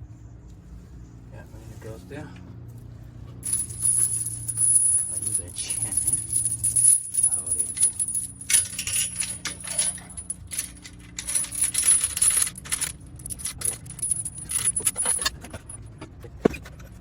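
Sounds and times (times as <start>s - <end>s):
metal chain rattling: 3.4s - 15.8s.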